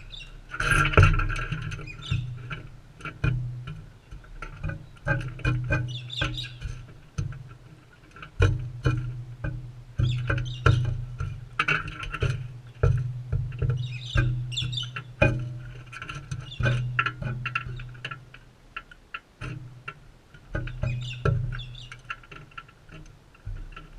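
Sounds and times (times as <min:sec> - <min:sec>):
soft bird chirps: 0:00.0 - 0:00.4, 0:01.8 - 0:02.4, 0:05.8 - 0:06.8, 0:10.0 - 0:10.9, 0:13.6 - 0:15.2, 0:20.6 - 0:22.0.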